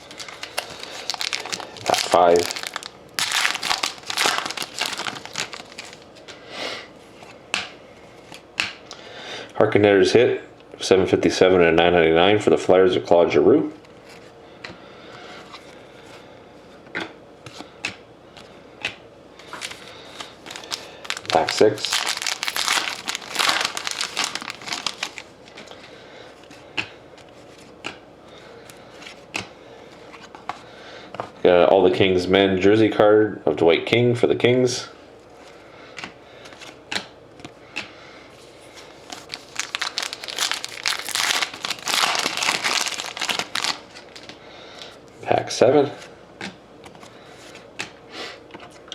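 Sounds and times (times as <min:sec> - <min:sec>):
card pack wrapper crinkling: 0:00.0 - 0:06.2, 0:19.4 - 0:25.3, 0:38.8 - 0:44.4.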